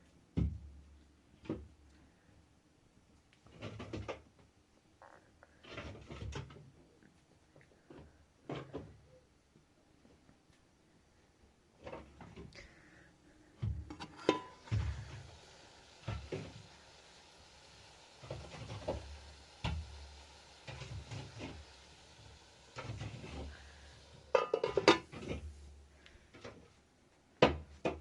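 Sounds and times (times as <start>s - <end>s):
objects knocking and clattering: 13.6s - 15.3s, 22.8s - 25.6s.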